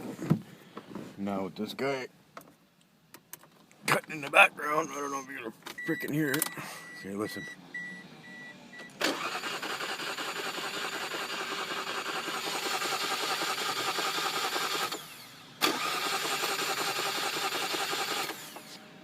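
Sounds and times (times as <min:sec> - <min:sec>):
car engine cranking on starter: 0:08.8 - 0:18.8.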